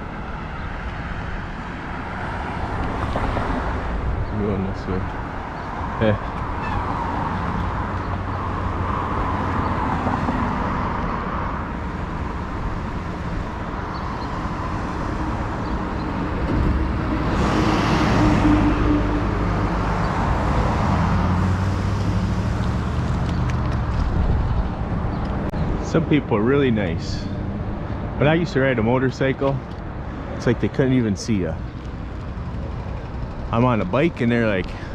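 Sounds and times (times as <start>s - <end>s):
motor vehicle passing: 0.0s - 34.1s
road traffic noise: 0.0s - 34.9s.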